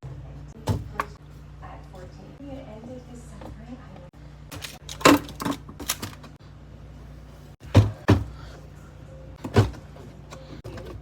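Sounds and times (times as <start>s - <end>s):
refrigerator low hum: 0.0s - 11.0s
containers knocking and clunking: 7.6s - 8.5s, 9.4s - 11.0s.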